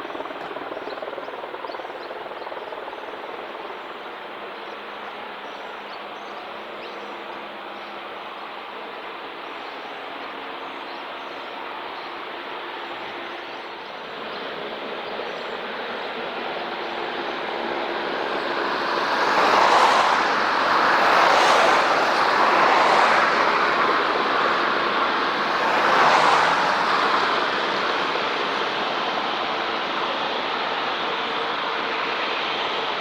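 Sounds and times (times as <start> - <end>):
jet airliner taking off: 14.0 - 33.0.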